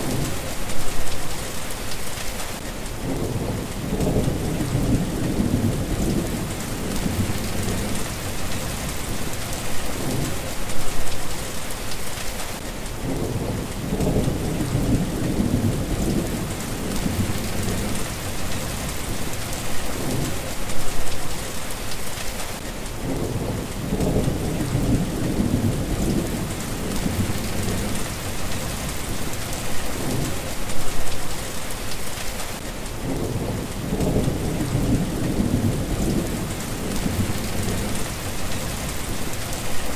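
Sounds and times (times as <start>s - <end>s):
steady rain hiss: 0.0s - 39.9s
thunder rolling: 3.0s - 9.4s, 33.0s - 39.9s.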